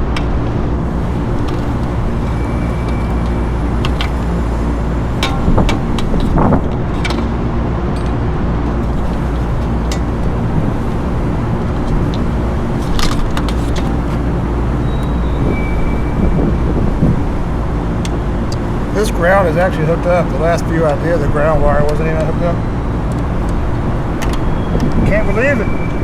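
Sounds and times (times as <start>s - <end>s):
mechanical equipment drone: 0.0s - 26.0s
tool clicks and metallic knocks: 1.2s - 10.4s, 11.8s - 14.3s.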